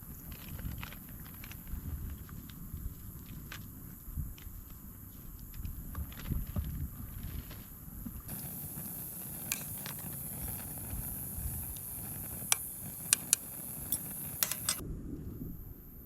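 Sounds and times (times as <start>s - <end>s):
campfire crackling and popping: 8.3s - 14.8s.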